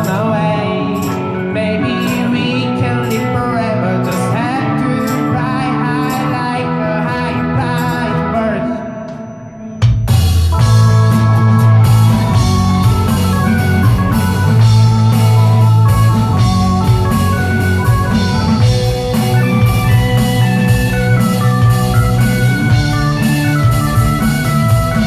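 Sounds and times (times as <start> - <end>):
bass line: 0.0 - 25.0
guitar: 0.0 - 25.0
drum kit: 9.1 - 25.0
organ: 10.5 - 25.0.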